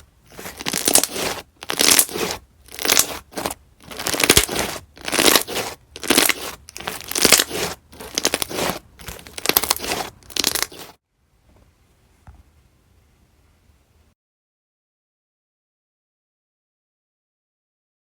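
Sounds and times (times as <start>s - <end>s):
slime squeezed by hand crackling: 0.6s - 3.2s, 3.9s - 8.6s, 9.4s - 10.9s.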